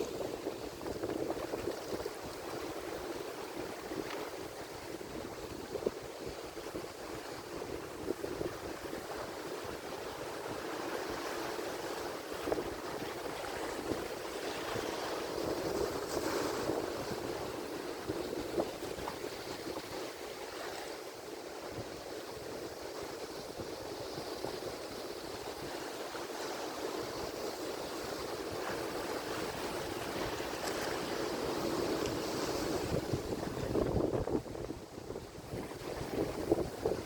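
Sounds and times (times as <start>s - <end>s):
waves breaking on shore: 0.0s - 37.0s.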